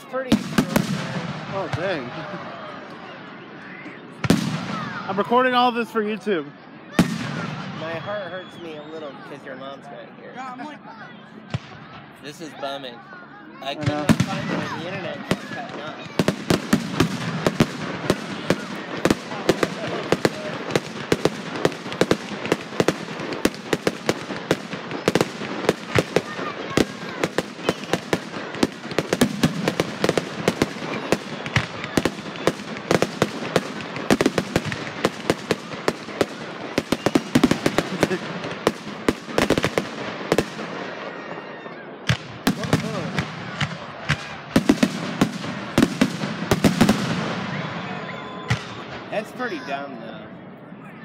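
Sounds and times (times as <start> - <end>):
fireworks bangs: 0.0 - 2.6, 4.1 - 5.7, 6.9 - 9.4, 13.6 - 49.7
fireworks crackle: 13.7 - 41.2, 42.0 - 47.8.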